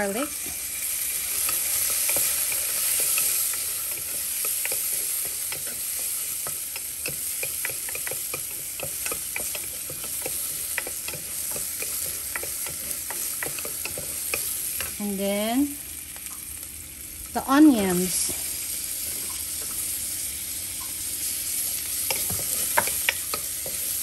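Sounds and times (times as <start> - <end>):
garlic sizzling in hot oil: 0.0 - 24.0
wooden spoon clicking on pan: 1.5 - 14.9, 22.1 - 23.8.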